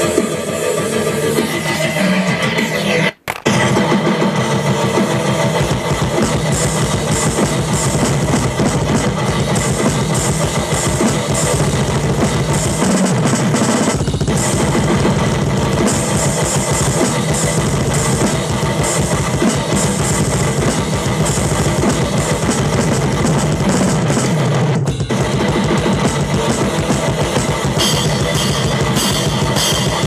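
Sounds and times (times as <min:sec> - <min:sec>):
heavy metal drums and guitar: 0:00.0 - 0:30.0
rapid bass drum hits: 0:05.2 - 0:24.3.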